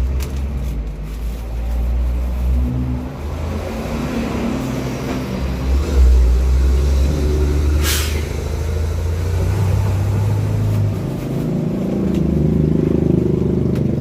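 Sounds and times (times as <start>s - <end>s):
vehicle engine rumbling: 0.0s - 14.0s
brief hiss: 7.8s - 8.3s.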